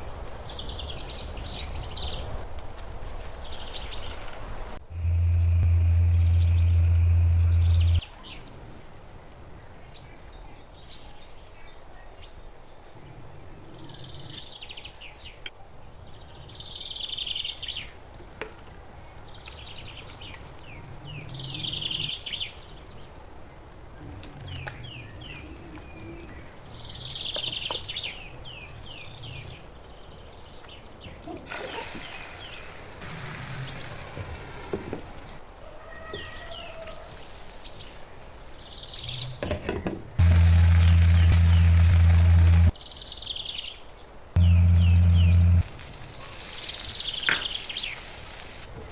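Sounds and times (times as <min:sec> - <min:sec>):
birds chirping: 0:03.0 - 0:08.6, 0:36.2 - 0:48.7
steady background hum: 0:04.8 - 0:08.0, 0:44.4 - 0:45.6
hiss: 0:31.5 - 0:35.1, 0:45.6 - 0:48.7.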